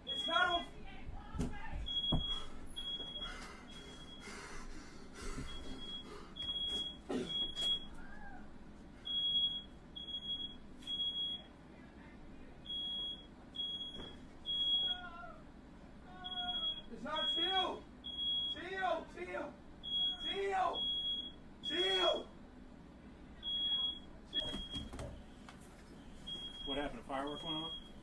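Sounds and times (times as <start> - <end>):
smoke alarm beeping: 0.0 - 0.8, 1.8 - 4.4, 5.2 - 8.0, 9.0 - 11.6, 12.6 - 15.0, 16.2 - 18.7, 19.8 - 22.4, 23.4 - 25.4, 26.1 - 28.0.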